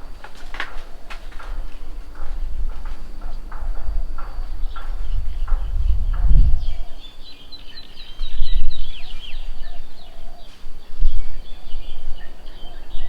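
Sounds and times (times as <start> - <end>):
low rumbles: 0.0 - 9.7
birds chirping and calling: 0.0 - 13.0.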